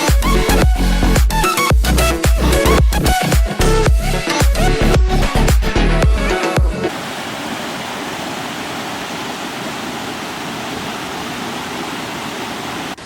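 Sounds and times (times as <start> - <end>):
dance music: 0.0 - 6.9
waterfall rushing: 6.9 - 13.0.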